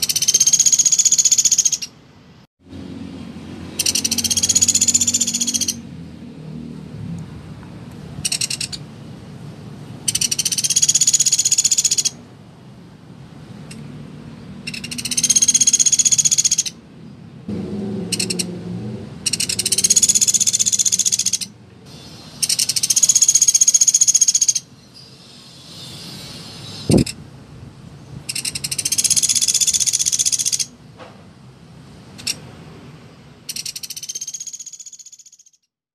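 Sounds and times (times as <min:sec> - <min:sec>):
woodpecker rattling trills: 0:00.0 - 0:01.9, 0:03.8 - 0:05.8, 0:08.2 - 0:08.8, 0:10.1 - 0:12.2, 0:14.6 - 0:16.8, 0:18.1 - 0:18.5, 0:19.2 - 0:21.5, 0:22.4 - 0:24.7, 0:28.3 - 0:30.7, 0:33.5 - 0:35.7.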